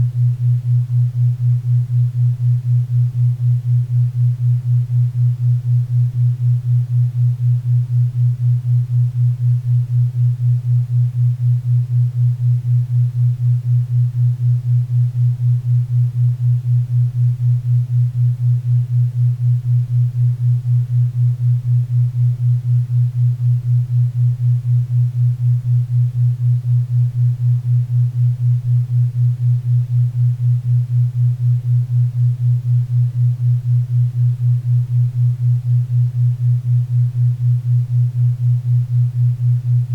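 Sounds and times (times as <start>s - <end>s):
pulsing low synthesized hum: 0.0s - 39.9s.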